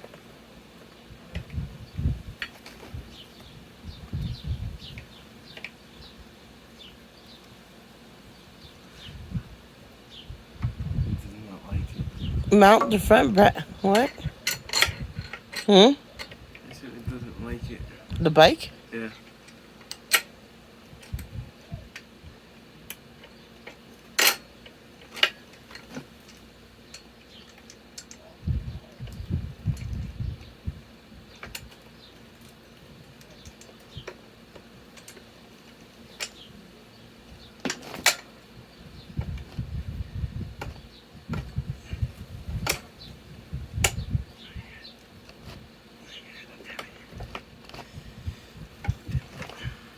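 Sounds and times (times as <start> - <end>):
low rumbling handling noise: 9.0 - 18.3, 37.3 - 45.8, 46.8 - 49.9.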